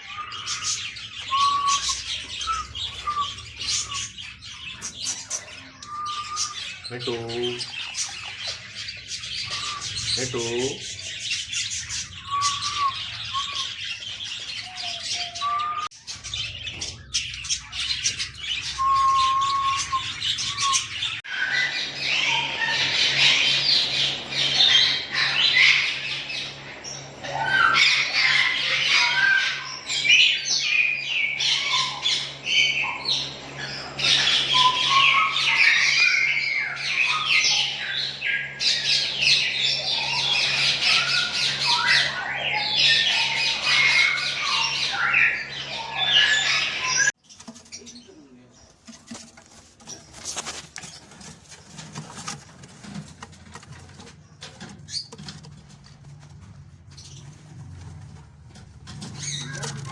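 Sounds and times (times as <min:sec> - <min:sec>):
parakeets squawking and chirping: 0:00.0 - 0:59.9
steady low hum: 0:19.7 - 0:37.0.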